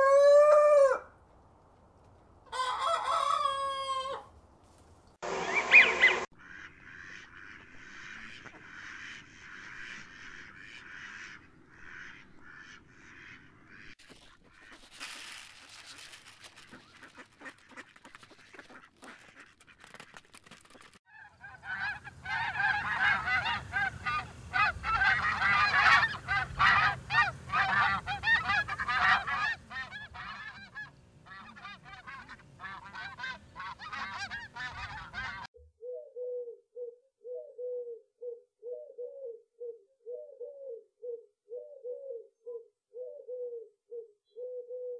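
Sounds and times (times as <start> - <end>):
geese honking: 5.4 - 20.2, 21.1 - 35.5
pigeon cooing: 34.8 - 44.9.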